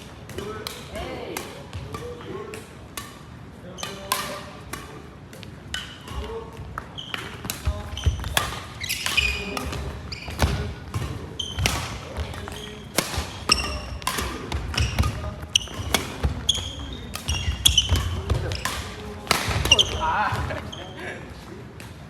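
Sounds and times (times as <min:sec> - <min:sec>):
racket striking shuttlecock: 0:00.0 - 0:20.7
sneakers squeaking on court floor: 0:05.7 - 0:21.0.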